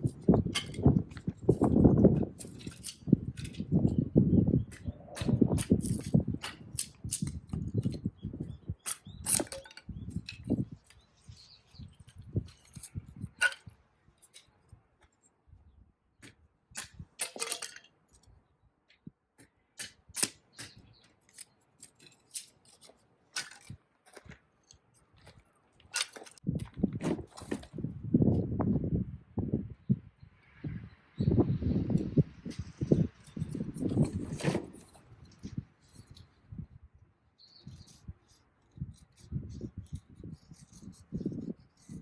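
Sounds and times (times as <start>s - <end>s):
wind buffeting microphone: 0.0s - 13.8s, 26.4s - 42.0s.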